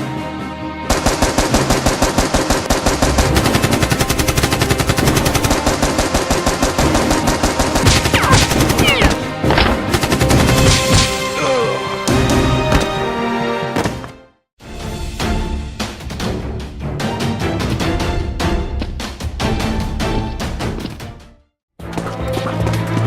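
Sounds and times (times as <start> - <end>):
background music: 0.0 - 23.0
rapid automatic gunfire: 0.9 - 9.2, 9.9 - 10.9.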